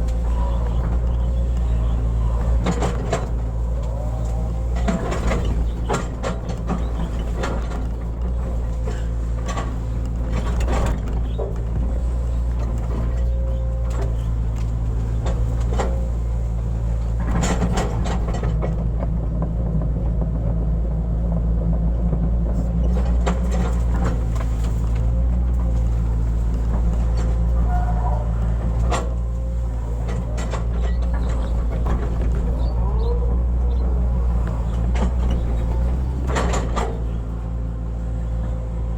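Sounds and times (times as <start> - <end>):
excavator diesel engine: 0.0 - 38.9
hydraulics whining: 0.0 - 38.9
bucket clanking and scraping soil: 22.6 - 38.2.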